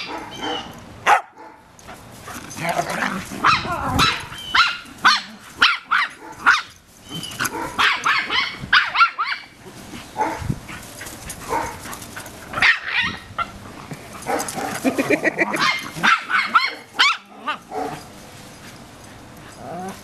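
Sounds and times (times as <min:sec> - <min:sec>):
dog yelping: 0:00.0 - 0:01.3, 0:03.4 - 0:09.5, 0:15.5 - 0:17.9
dog barking: 0:00.0 - 0:01.6, 0:07.5 - 0:09.4, 0:10.2 - 0:10.4, 0:11.5 - 0:11.8, 0:15.6 - 0:18.0.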